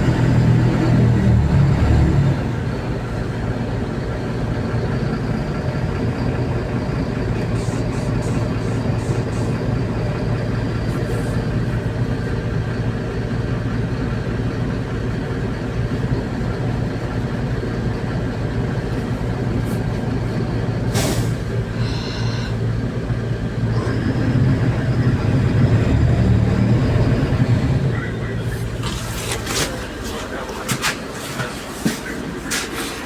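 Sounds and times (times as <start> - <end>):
bus engine droning: 0.0 - 33.0
brief high whine: 21.8 - 22.6.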